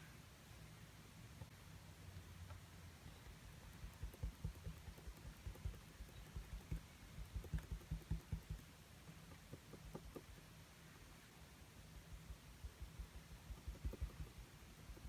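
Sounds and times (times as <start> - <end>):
paint tapping on canvas: 3.6 - 10.5, 12.6 - 15.0.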